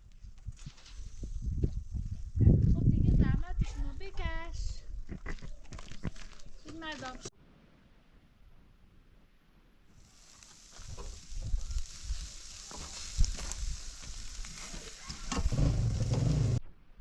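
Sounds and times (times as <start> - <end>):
food sizzling in a pan: 9.9 - 15.4.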